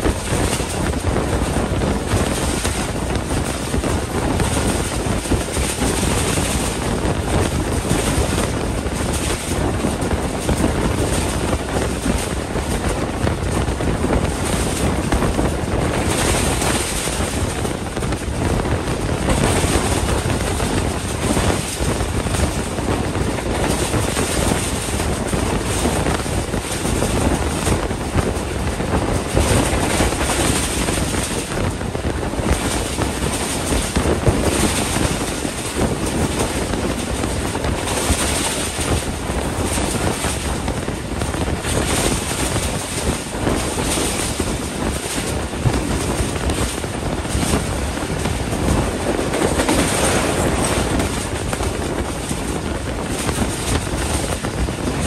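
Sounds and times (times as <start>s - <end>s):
passenger train running: 0.0s - 55.0s
rush of wind: 0.0s - 55.0s
wind buffeting microphone: 0.0s - 55.0s.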